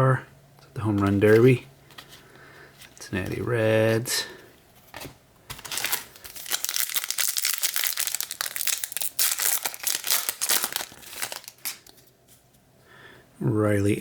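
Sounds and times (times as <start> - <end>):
foil wrapper crinkling: 5.5 - 12.0.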